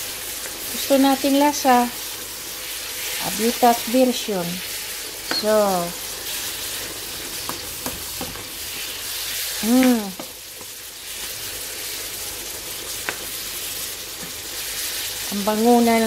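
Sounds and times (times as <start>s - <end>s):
apples sizzling in a frying pan: 0.0s - 16.0s
person humming: 9.6s - 10.2s.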